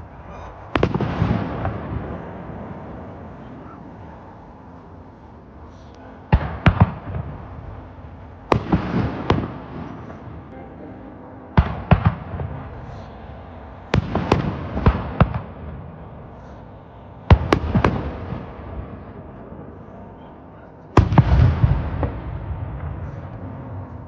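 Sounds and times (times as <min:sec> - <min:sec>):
rumbling echo: 0:00.0 - 0:24.0
fireworks bangs: 0:00.7 - 0:03.8, 0:06.3 - 0:10.6, 0:11.5 - 0:13.2, 0:13.8 - 0:16.2, 0:17.3 - 0:19.0, 0:21.0 - 0:23.4.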